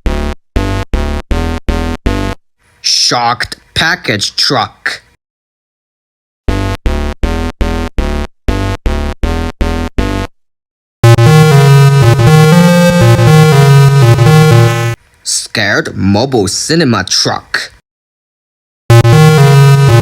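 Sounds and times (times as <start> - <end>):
dense electronic chord: 0.0 - 2.4, 6.5 - 10.3, 11.0 - 15.0, 18.9 - 20.0
synthesizer stabs: 0.0 - 2.4, 6.5 - 10.3, 11.0 - 15.0, 18.9 - 20.0.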